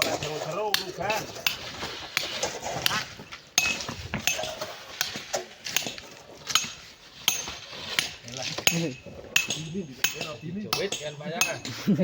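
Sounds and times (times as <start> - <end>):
metal tools striking rock: 0.0 - 11.8.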